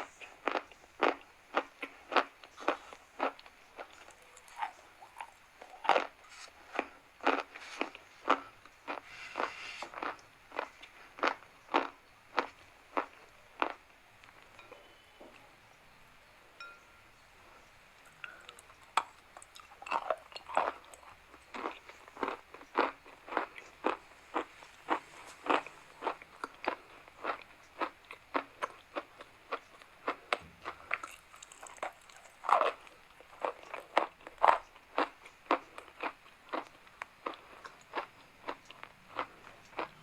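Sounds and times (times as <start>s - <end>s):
chalk crunching: 6.0s - 10.1s.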